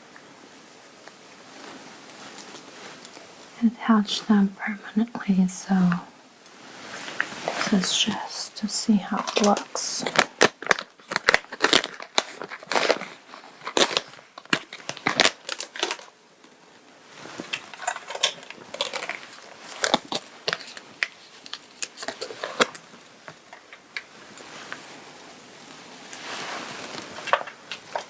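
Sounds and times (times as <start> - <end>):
fabric rustling: 1.4 - 16.1, 17.0 - 23.5, 24.1 - 28.0.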